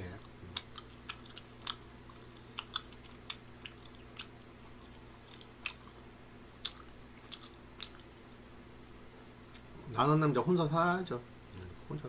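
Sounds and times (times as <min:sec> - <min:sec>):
faint low hum: 0:00.0 - 0:12.0
wet chewing mouth clicks: 0:00.5 - 0:06.0, 0:06.6 - 0:08.4.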